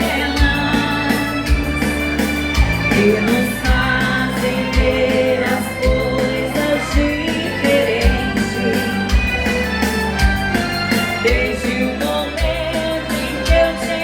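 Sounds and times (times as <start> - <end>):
dance band playing a waltz: 0.0 - 14.0
low bass beat: 0.0 - 14.0
person singing: 0.0 - 14.0.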